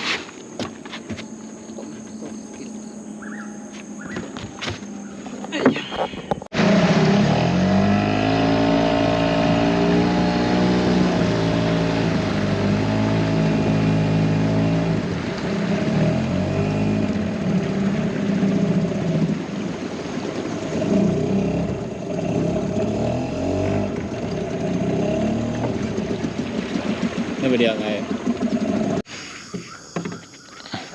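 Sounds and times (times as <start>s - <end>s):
engine revving: 6.5s - 19.5s, 20.5s - 29.1s.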